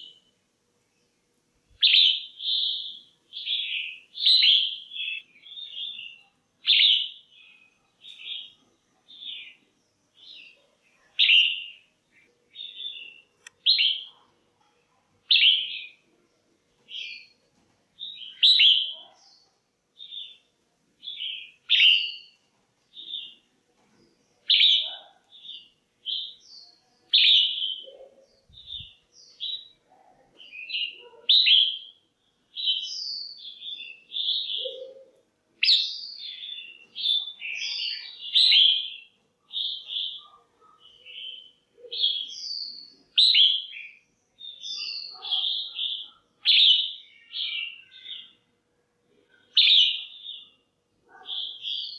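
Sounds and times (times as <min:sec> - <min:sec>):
bulbul chirped calls: 0:11.2 - 0:14.1.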